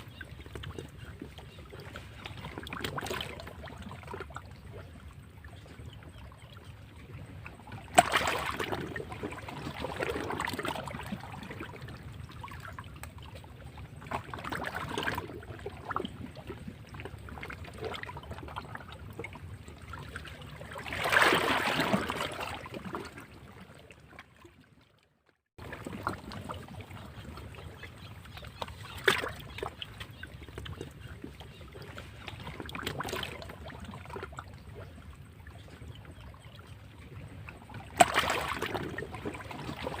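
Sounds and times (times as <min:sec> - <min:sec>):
waves breaking against rocks: 0:07.8 - 0:11.8, 0:20.2 - 0:23.4, 0:37.8 - 0:40.0.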